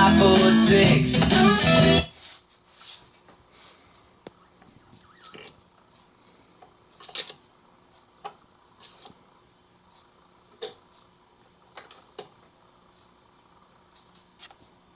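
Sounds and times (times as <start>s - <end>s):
faint steady hum: 0.0s - 14.9s.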